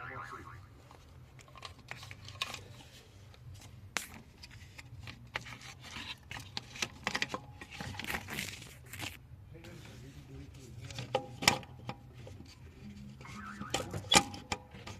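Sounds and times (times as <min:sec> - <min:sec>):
low steady hum: 0:00.0 - 0:14.9
hands handling tools and parts: 0:00.8 - 0:09.2.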